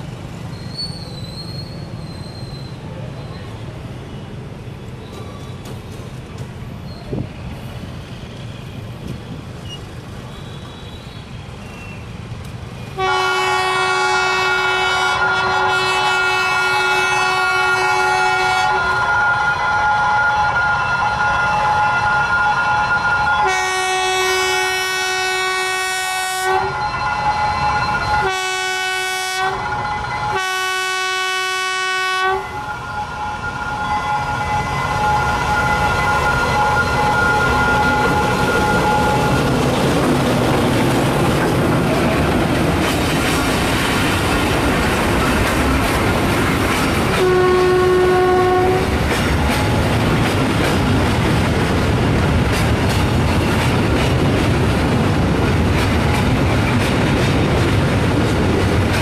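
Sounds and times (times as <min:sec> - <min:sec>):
locomotive horn blasts: 0:13.0 - 0:39.6, 0:47.1 - 0:49.0
freight wagons rumbling and clattering: 0:38.4 - 0:47.2.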